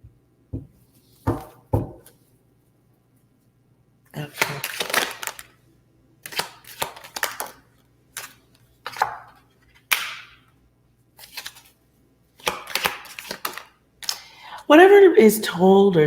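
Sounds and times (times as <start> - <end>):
cards slapped on a table: 9.9 - 10.4.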